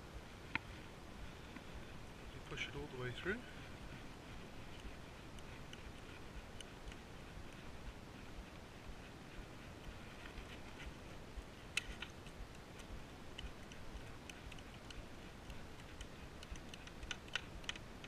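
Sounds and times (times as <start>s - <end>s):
faint clicks of cable handling: 9.8s - 18.0s.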